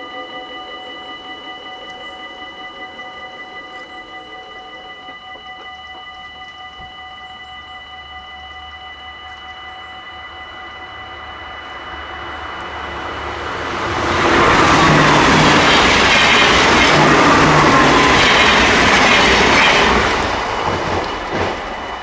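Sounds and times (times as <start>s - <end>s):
crossing warning bells ringing: 0.0s - 22.0s
train wheels on rails: 10.9s - 22.0s.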